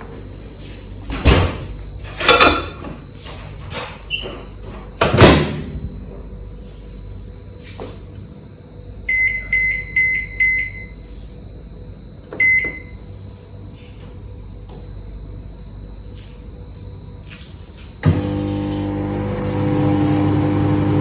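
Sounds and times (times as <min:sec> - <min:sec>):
microwave oven beeping: 0:00.0 - 0:21.0
door shutting with a thump: 0:01.1 - 0:01.7, 0:05.0 - 0:05.8.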